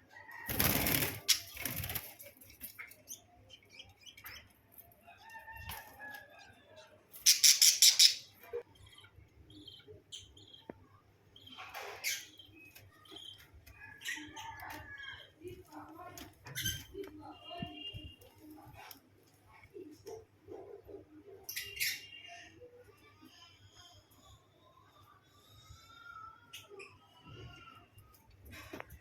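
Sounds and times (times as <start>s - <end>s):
wings flapping: 0.5s - 2.4s
small bird chirping: 7.2s - 15.2s.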